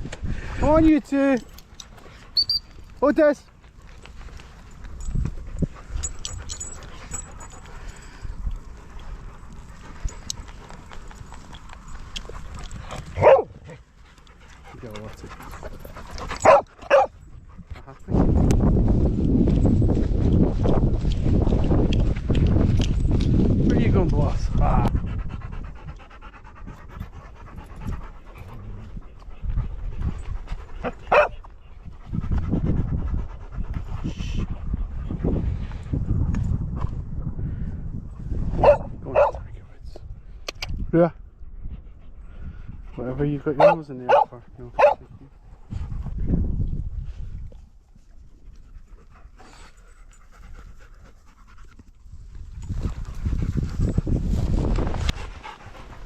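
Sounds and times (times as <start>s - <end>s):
dogs moving about: 1.3s - 18.4s
dog panting: 3.4s - 18.3s, 24.0s - 36.1s, 47.8s - 56.0s.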